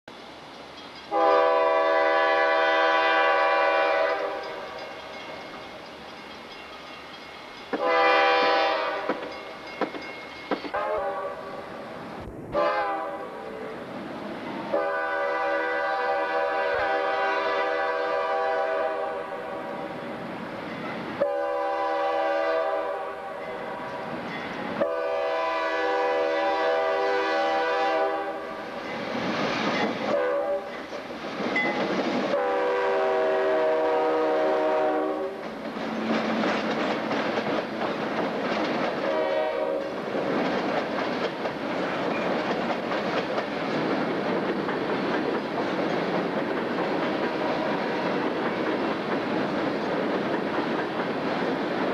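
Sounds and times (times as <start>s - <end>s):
train rumbling past: 0.1s - 51.9s
locomotive air horn blasts: 1.1s - 4.7s, 7.8s - 9.2s, 10.7s - 11.6s, 12.5s - 13.5s, 14.7s - 19.8s, 21.2s - 24.0s, 24.8s - 28.6s, 30.1s - 30.7s, 32.3s - 35.4s, 39.1s - 40.0s
wheels clacking over rails: 9.0s - 10.8s, 28.8s - 32.4s, 35.4s - 39.2s, 39.8s - 51.9s.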